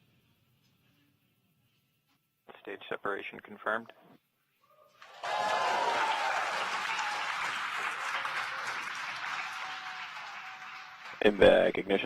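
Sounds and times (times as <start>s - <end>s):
crowd clapping and cheering: 5.0s - 12.0s.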